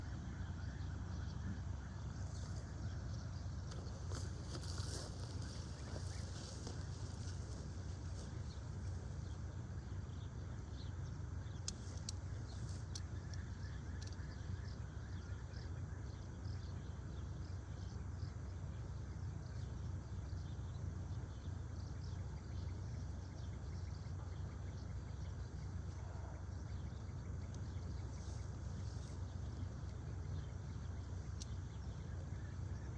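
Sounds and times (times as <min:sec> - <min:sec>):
birds twittering: 0:00.0 - 0:32.9
steady low rumble: 0:00.0 - 0:32.9.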